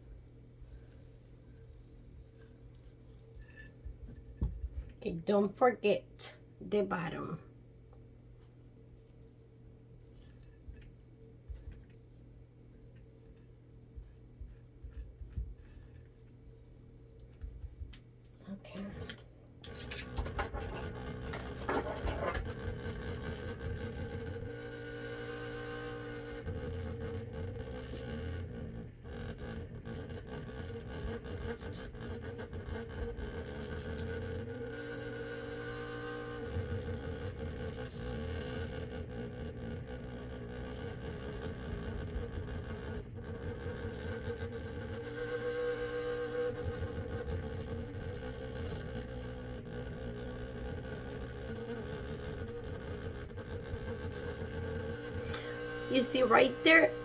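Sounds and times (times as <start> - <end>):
light clicks and scrapes: 10.0 - 12.0, 12.9 - 16.5
small electric motor running: 20.1 - 57.0.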